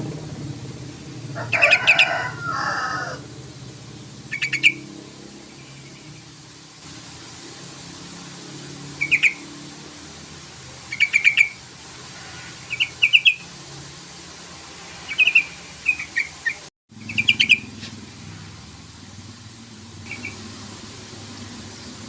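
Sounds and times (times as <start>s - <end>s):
steady low hum: 0.0s - 2.6s, 3.2s - 10.9s
bird bubbling calls: 4.2s - 4.9s, 9.0s - 9.5s, 10.8s - 11.6s, 12.3s - 13.5s, 15.0s - 17.8s, 20.0s - 20.5s.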